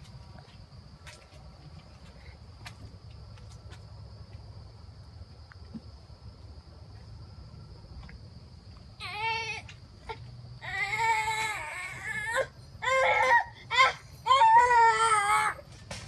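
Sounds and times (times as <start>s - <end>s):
child crying out: 9.0s - 15.6s.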